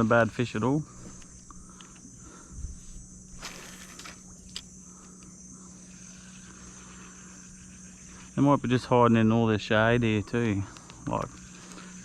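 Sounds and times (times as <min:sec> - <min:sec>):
insects buzzing: 0:00.0 - 0:12.0
brief rustle: 0:03.3 - 0:04.7.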